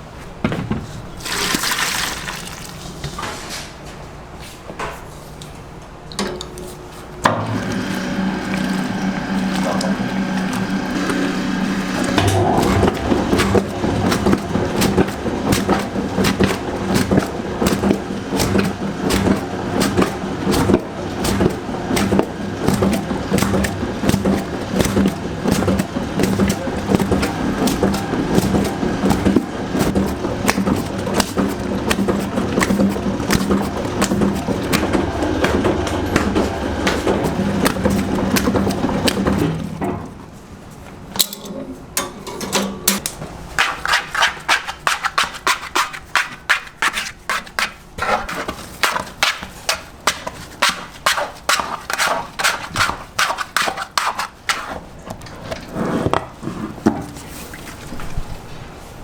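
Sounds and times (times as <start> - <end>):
motor humming: 7.3 - 39.7.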